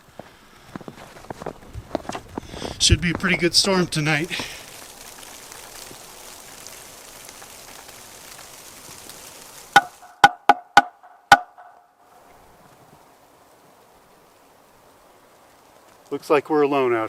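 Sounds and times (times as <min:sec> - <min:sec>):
steady hiss: 0:00.0 - 0:17.0
sharp knocks: 0:09.8 - 0:11.8.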